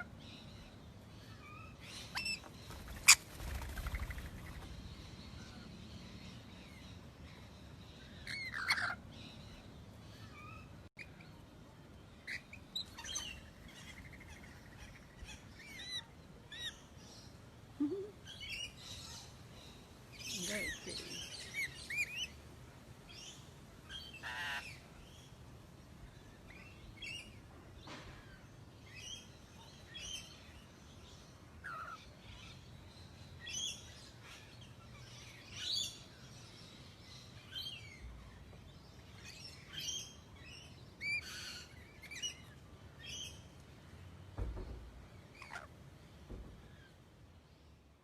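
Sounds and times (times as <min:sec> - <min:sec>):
parrots chirping: 0:08.0 - 0:09.0, 0:24.1 - 0:24.8.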